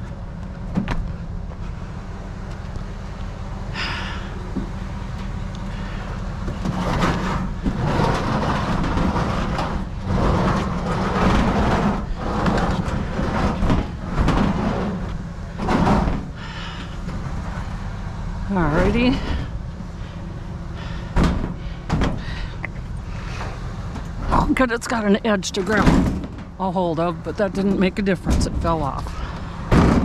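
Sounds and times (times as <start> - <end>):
low rumble: 0.0 - 30.0
heavy object scraping and dragging: 4.9 - 24.7.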